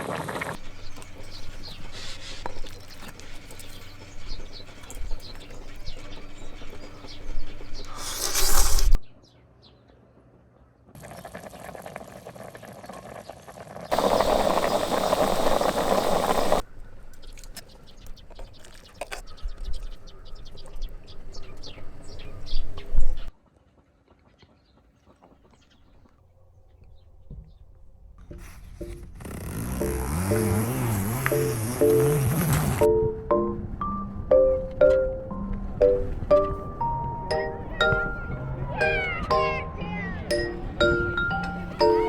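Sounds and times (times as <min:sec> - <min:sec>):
rushing flames: 0:00.0 - 0:01.2, 0:11.0 - 0:16.6.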